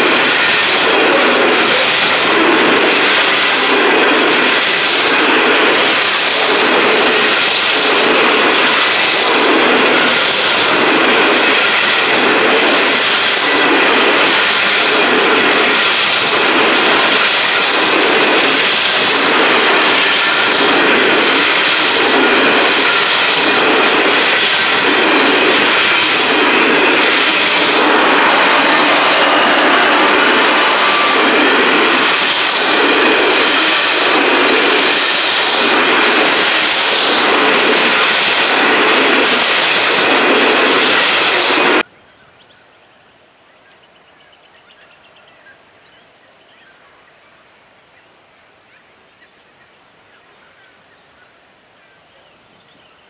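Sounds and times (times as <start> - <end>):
train wagons rumbling past: 0.0 - 41.9.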